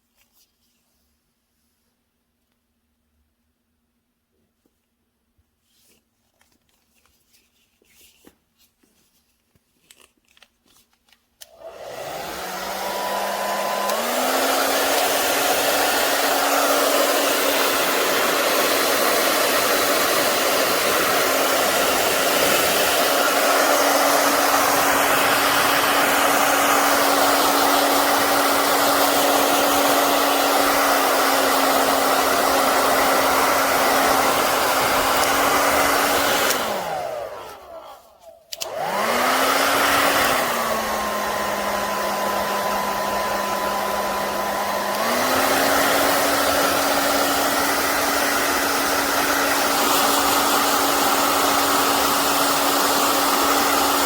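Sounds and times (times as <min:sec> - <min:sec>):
hair dryer blowing: 0:11.4 - 0:54.0.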